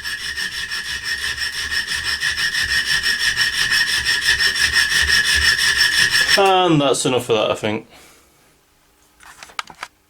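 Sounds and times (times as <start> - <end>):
hacksaw cutting metal: 0.0 - 6.5.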